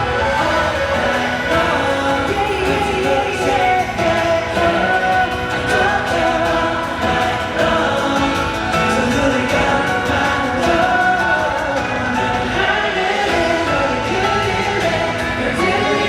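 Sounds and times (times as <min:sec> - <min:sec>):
live pop concert music: 0:00.0 - 0:16.0
voices singing together: 0:00.0 - 0:16.0.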